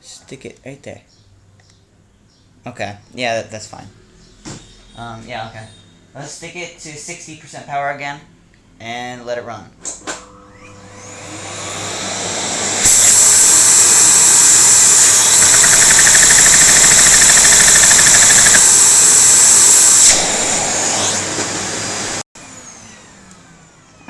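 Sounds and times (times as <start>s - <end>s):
vacuum cleaner motor whining: 10.5s - 22.2s
fast rattle: 12.8s - 20.2s.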